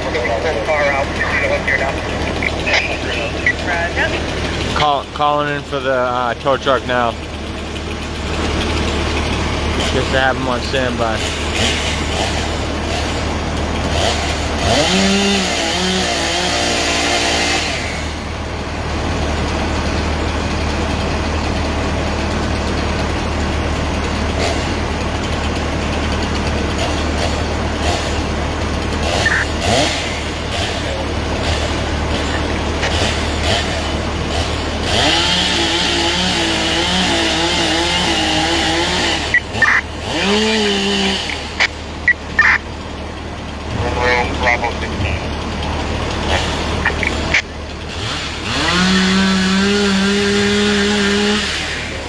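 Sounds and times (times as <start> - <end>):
voice-like sounds: 0.0 - 7.1, 32.1 - 32.9, 43.7 - 45.4, 46.3 - 47.6
vehicle engine idling: 0.0 - 52.0.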